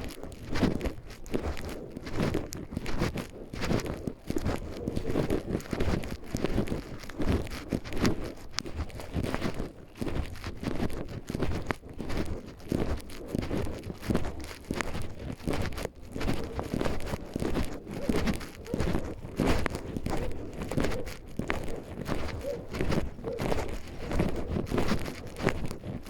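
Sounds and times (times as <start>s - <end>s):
footsteps on forest trail: 0.0s - 26.0s
rustling underfoot: 0.0s - 26.0s.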